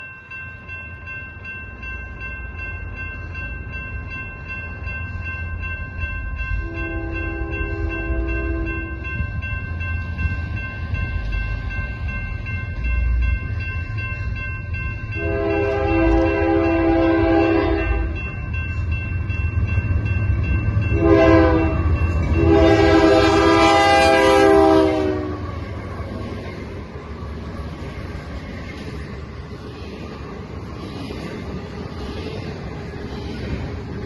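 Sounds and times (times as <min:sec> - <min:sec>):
diesel locomotive rumbling: 0:00.0 - 0:34.0
train air horn blasts: 0:06.6 - 0:08.9, 0:15.2 - 0:18.2, 0:21.0 - 0:25.5.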